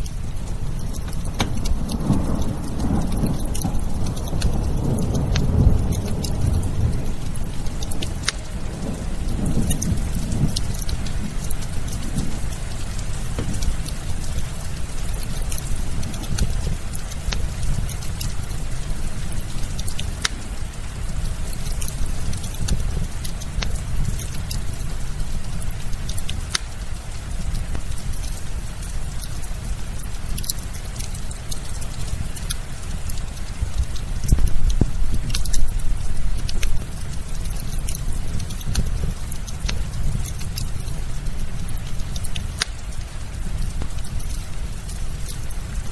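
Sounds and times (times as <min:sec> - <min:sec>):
continuous low rumble: 0:00.0 - 0:45.9
firewood crackling and popping: 0:00.0 - 0:45.9
rain: 0:00.0 - 0:45.9.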